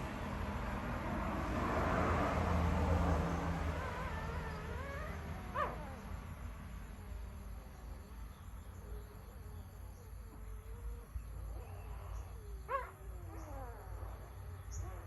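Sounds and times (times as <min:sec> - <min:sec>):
puppy yelping: 0:03.6 - 0:06.0
puppies whimpering: 0:10.6 - 0:14.1.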